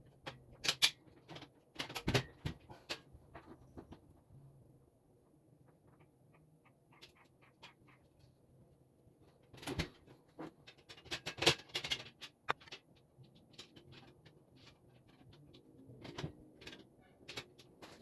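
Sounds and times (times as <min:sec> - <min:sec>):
knocks and clatter of table parts: 0:09.6 - 0:14.2.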